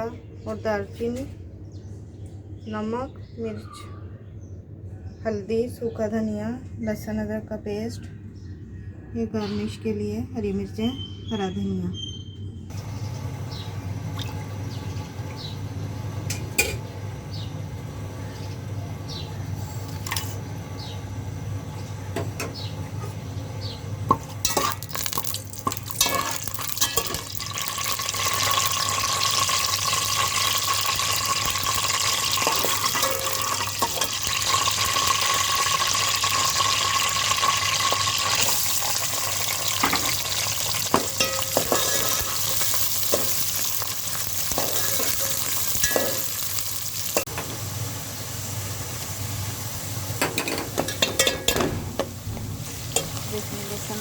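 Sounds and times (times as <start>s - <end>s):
food sizzling in hot oil: 24.1s - 54.0s
spoon knocking against pot: 40.9s - 42.3s, 50.2s - 52.1s.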